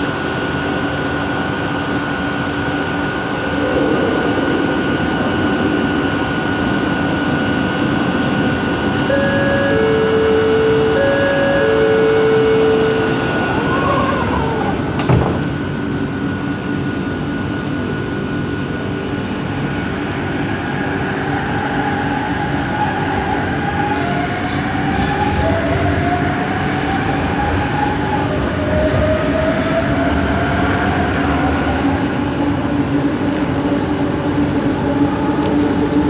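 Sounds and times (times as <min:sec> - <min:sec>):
train rolling noise: 0:00.0 - 0:36.0
train motor whine: 0:06.2 - 0:15.8, 0:21.4 - 0:36.0.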